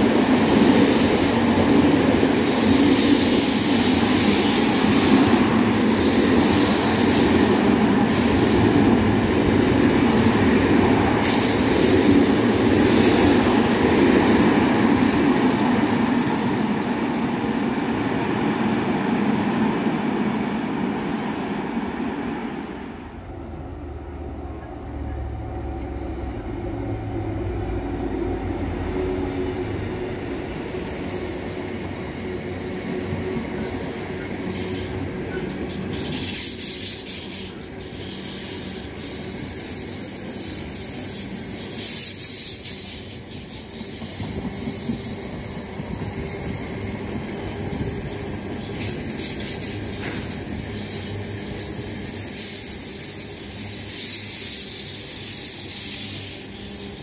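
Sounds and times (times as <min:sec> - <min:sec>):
train hissing with clicks: 0:00.0 - 0:16.9, 0:17.7 - 0:18.4, 0:20.4 - 0:21.9, 0:30.4 - 0:32.2, 0:33.0 - 0:57.0
train rumbling on rails: 0:00.0 - 0:57.0.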